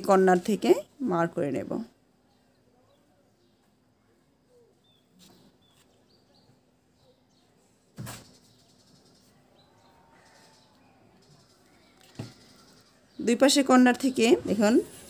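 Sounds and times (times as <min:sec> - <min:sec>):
faint bird chirps: 0:02.2 - 0:13.4.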